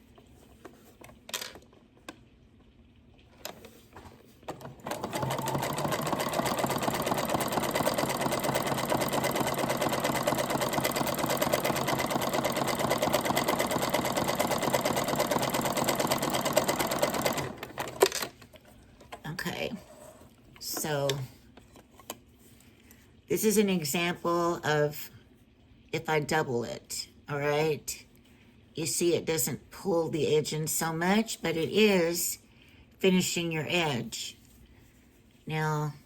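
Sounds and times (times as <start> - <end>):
sewing machine running: 4.5 - 18.2.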